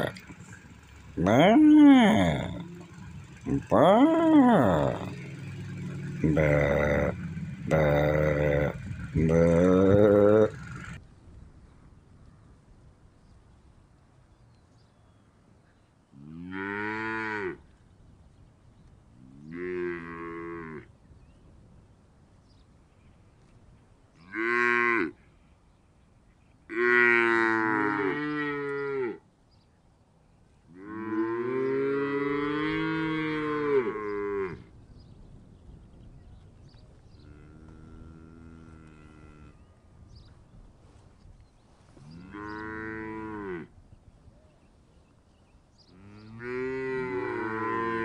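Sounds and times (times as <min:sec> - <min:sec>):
cow mooing: 0:00.0 - 0:11.0, 0:16.2 - 0:17.6, 0:19.3 - 0:20.8, 0:24.2 - 0:25.2, 0:26.7 - 0:29.2, 0:30.8 - 0:34.7, 0:37.2 - 0:39.7, 0:42.0 - 0:43.7, 0:46.0 - 0:48.0.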